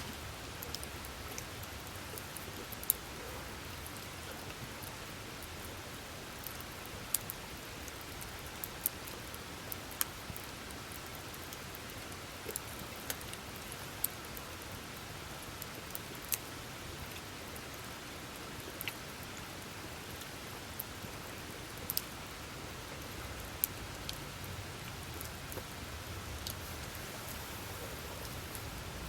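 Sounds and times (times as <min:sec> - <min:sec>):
campfire crackling and popping: 0:00.1 - 0:17.8, 0:22.9 - 0:29.0
fire hissing: 0:26.5 - 0:29.0.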